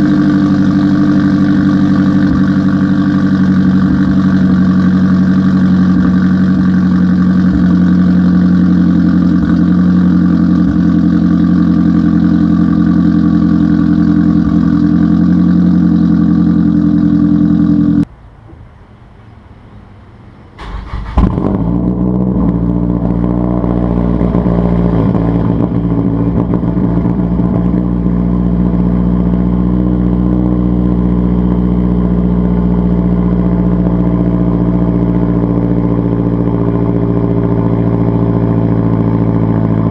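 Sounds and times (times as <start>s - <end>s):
car engine idling: 0.0s - 39.9s
engine cranking and starting: 20.6s - 21.6s.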